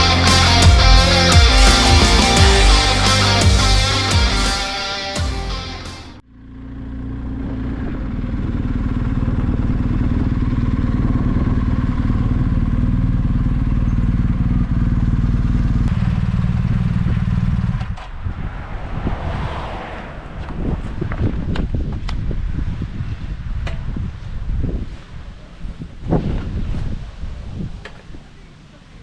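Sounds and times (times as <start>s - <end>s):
motorcycle engine running: 0.0s - 18.3s
wind noise: 17.0s - 28.3s.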